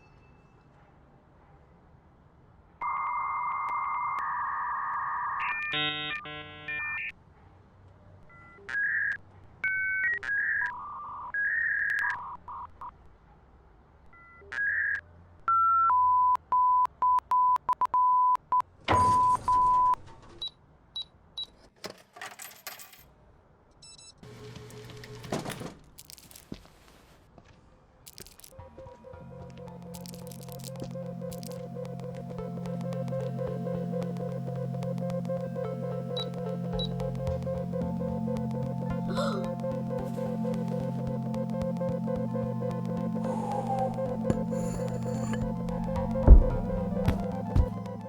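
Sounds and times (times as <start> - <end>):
vending machine electronic beeps: 2.8 - 7.1, 29.2 - 48.0.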